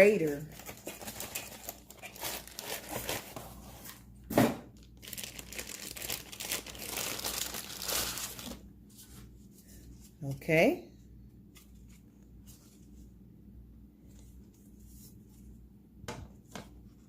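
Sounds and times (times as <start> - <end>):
packaging crinkling and rustling: 0.0 - 8.7
packaging crunch: 0.5 - 3.4, 4.8 - 8.6.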